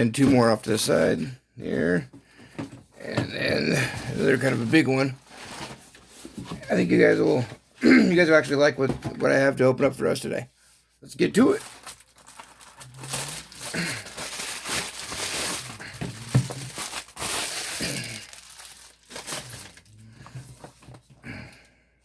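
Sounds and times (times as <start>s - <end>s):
packaging crinkling and tearing: 11.4s - 20.0s
handling rustles and clicks: 11.6s - 21.2s.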